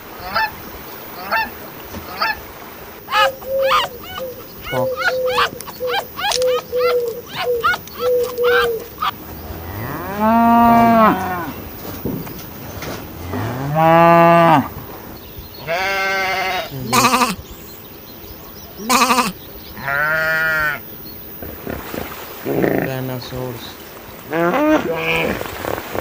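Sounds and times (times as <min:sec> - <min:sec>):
animal bleat-like cries: 0:15.6 - 0:17.4, 0:18.8 - 0:20.8.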